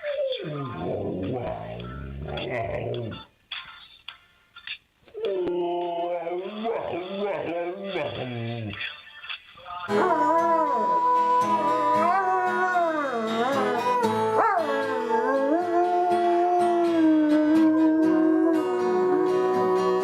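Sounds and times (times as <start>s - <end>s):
dog howling: 9.9s - 20.0s.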